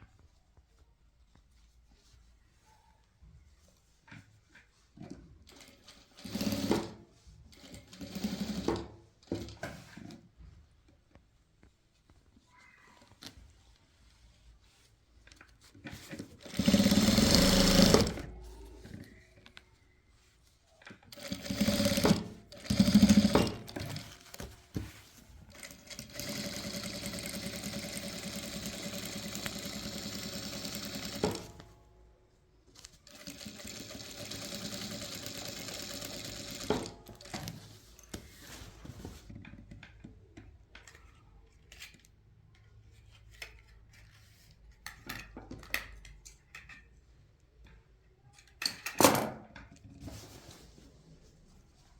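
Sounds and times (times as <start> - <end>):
sewing machine stitching: 5.5 - 9.5, 16.4 - 18.3, 21.1 - 24.4, 25.5 - 31.7, 33.0 - 37.7.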